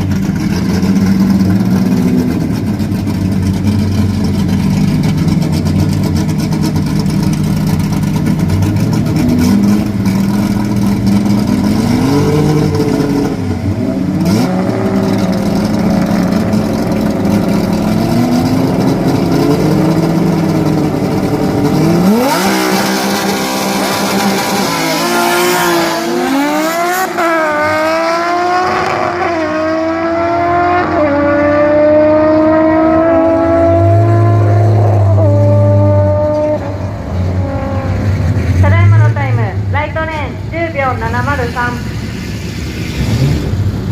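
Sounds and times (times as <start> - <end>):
cars accelerating through gear changes: 0.0 - 38.9
race car engines revving: 0.0 - 43.9.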